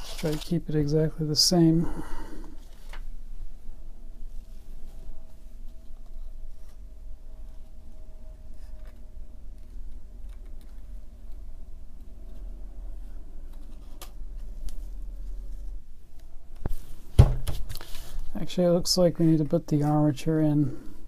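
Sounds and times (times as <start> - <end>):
low steady hum: 0.0 - 21.0
loud knock: 17.2 - 17.6.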